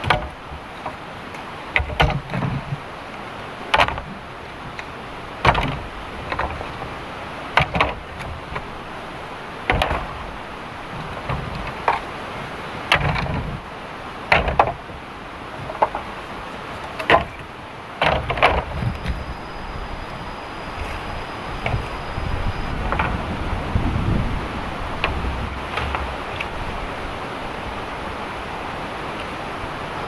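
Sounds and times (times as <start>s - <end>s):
sharp wooden knocks: 0.0s - 2.9s, 3.7s - 9.0s, 9.6s - 12.2s, 12.9s - 13.7s, 14.3s - 15.0s, 15.6s - 16.1s, 17.0s - 19.4s, 20.7s - 26.6s
heavy rain hiss: 0.0s - 30.0s.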